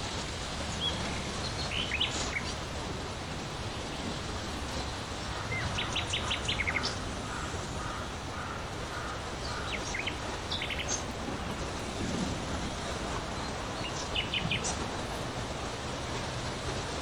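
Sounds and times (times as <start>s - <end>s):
wind in forest: 0.0s - 17.0s
songbird chirping: 5.5s - 11.8s.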